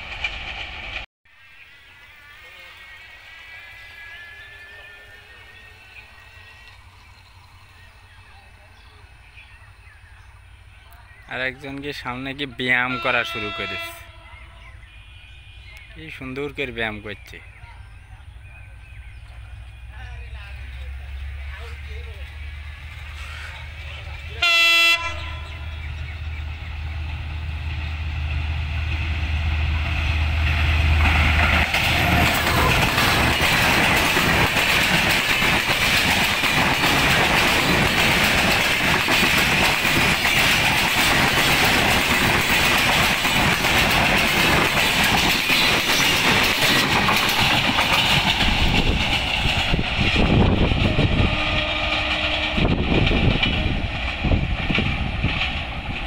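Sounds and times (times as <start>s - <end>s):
diesel locomotive engine droning: 0.0s - 56.0s
train coaches clattering over rail joints: 30.0s - 56.0s.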